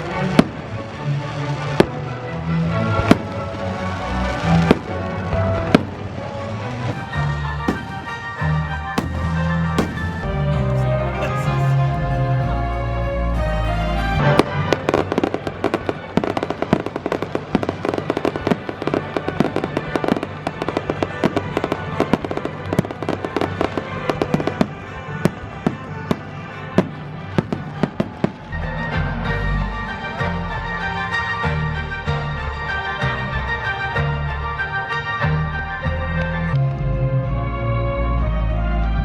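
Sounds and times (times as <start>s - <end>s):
music: 0.0s - 39.0s
fireworks popping and crackling: 6.9s - 11.9s.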